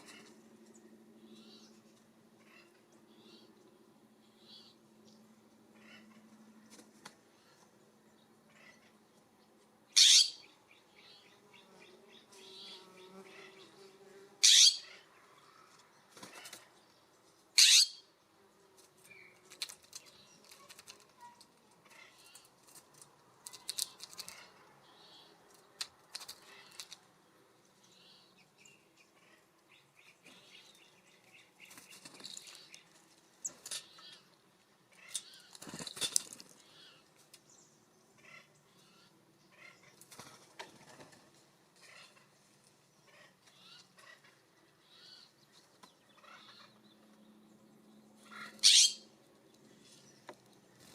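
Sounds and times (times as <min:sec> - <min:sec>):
bird clicks and flutters: 0:18.8 - 0:24.5, 0:25.5 - 0:27.1, 0:31.6 - 0:33.9, 0:35.0 - 0:37.5.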